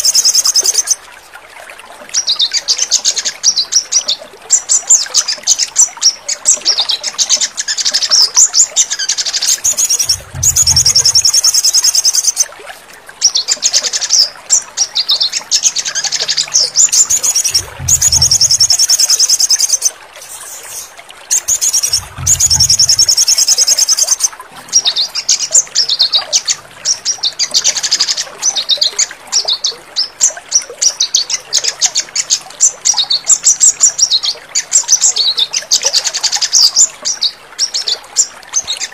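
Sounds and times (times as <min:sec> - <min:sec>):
bird trills and chittering calls: 0:00.0 - 0:01.0, 0:02.1 - 0:12.5, 0:13.2 - 0:38.9
low rumbles: 0:10.0 - 0:11.4, 0:16.7 - 0:18.8, 0:21.8 - 0:23.3.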